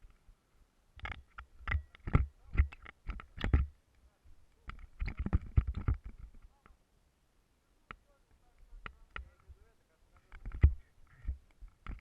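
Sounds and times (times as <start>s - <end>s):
irregular knocks and thumps: 1.0s - 3.8s, 4.6s - 6.5s, 10.2s - 12.0s.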